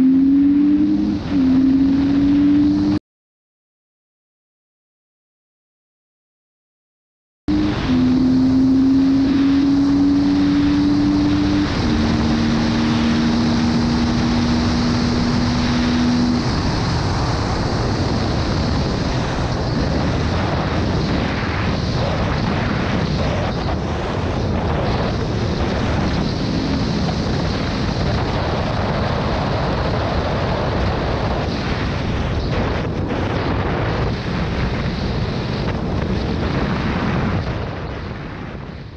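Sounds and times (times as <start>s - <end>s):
motorcycle engine running: 7.5s - 21.0s
riding noise: 7.5s - 38.3s
wind on microphone: 7.5s - 38.9s.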